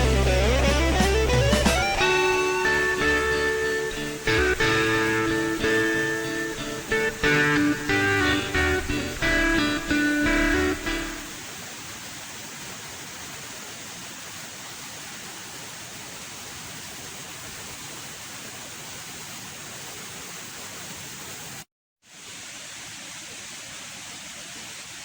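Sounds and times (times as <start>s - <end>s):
waterfall rushing: 0.0s - 18.6s.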